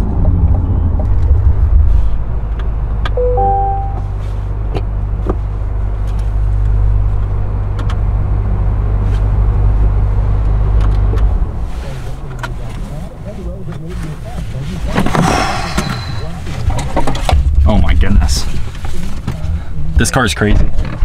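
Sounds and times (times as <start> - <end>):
car engine rumbling: 0.0 - 20.0
electronic chime: 3.2 - 4.2.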